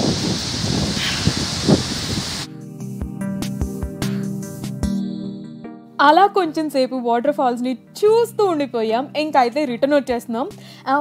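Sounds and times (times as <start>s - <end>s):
waterfall roaring: 0.0s - 2.5s
wind buffeting microphone: 0.0s - 2.5s.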